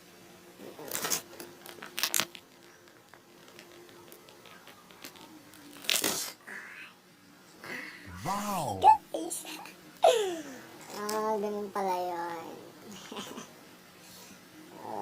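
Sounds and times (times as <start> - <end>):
plastic packaging rustling: 0.8 - 6.2.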